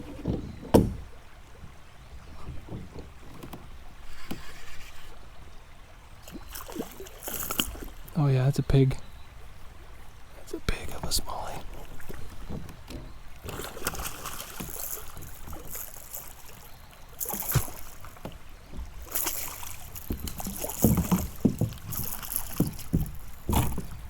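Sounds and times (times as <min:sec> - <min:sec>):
dull knocks against kayak: 0:00.0 - 0:01.2, 0:12.1 - 0:14.1, 0:17.4 - 0:24.0
water splashing: 0:06.1 - 0:24.0.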